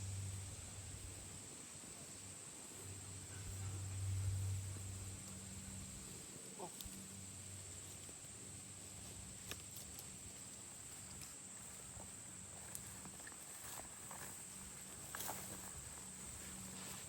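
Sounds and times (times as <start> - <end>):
steady high-pitched hum: 0.0 - 9.4.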